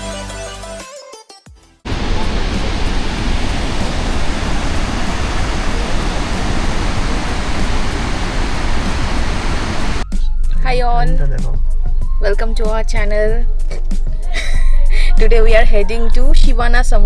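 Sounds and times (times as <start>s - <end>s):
loud steady rushing noise: 1.9s - 10.1s.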